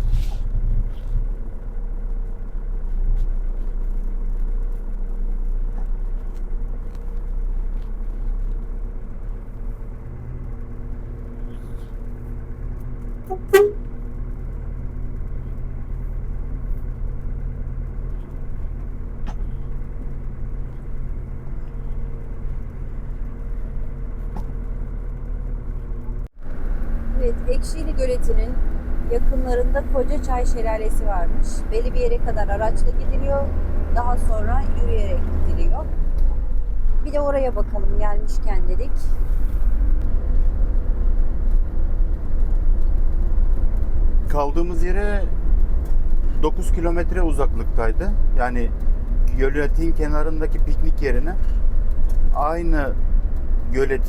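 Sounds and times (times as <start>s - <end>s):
vehicle engine and road rumble: 0.0s - 54.0s
short sharp toot or click: 13.3s - 13.9s.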